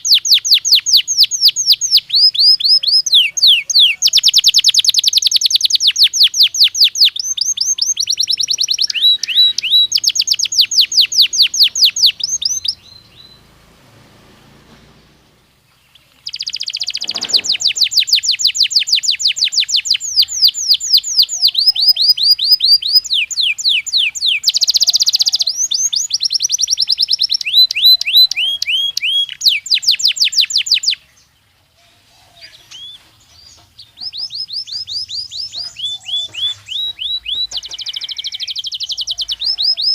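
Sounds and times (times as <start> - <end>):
canary singing rapid trills: 0.0 - 13.8, 14.9 - 31.4, 32.3 - 39.9.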